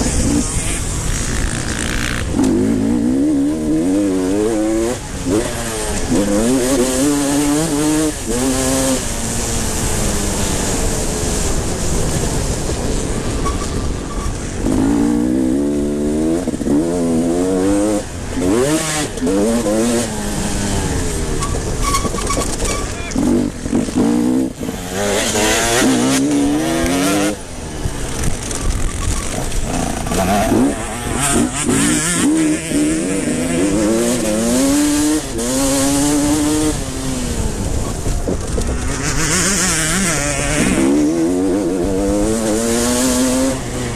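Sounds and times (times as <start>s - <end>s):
motocross motorcycles revving: 0.0s - 43.9s.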